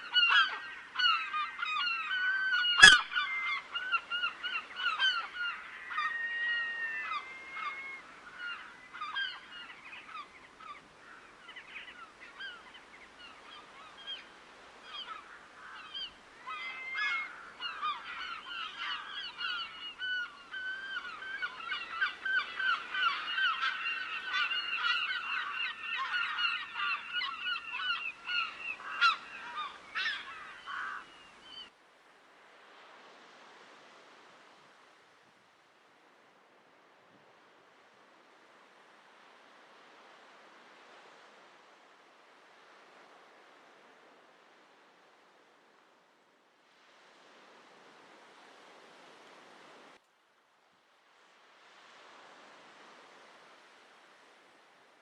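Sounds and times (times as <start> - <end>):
flock of geese honking: 0.1 - 9.4.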